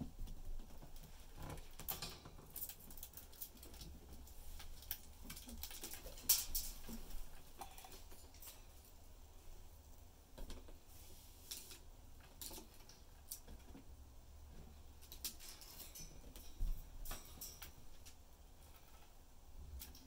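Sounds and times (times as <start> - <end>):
budgies clicking and scratching in cage: 0.3 - 8.8, 14.5 - 20.0.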